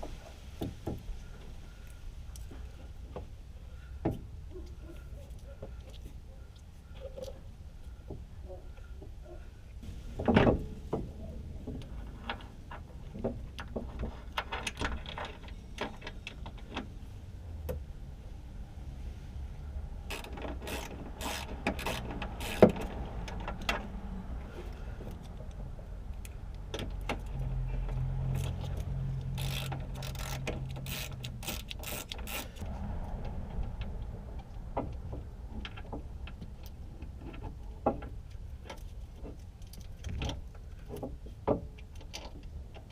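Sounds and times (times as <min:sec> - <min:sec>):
ratchet clicks: 0:20.1 - 0:23.7, 0:28.3 - 0:32.6.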